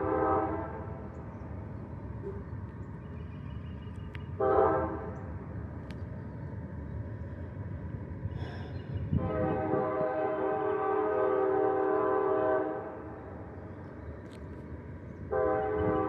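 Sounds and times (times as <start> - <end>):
train horn blast: 0.0 - 1.0, 4.4 - 5.2, 9.2 - 13.2, 15.3 - 16.0.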